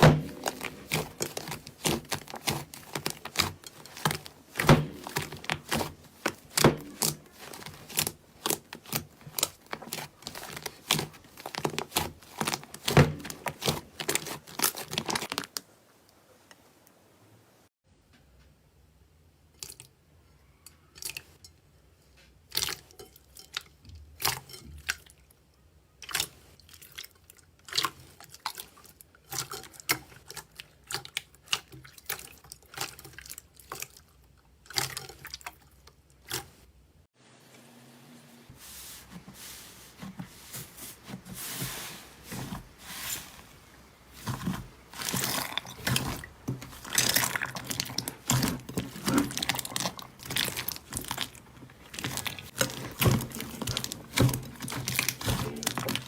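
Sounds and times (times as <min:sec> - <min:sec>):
crinkly slime crackling: 0:00.0 - 0:15.8, 0:38.6 - 0:56.0.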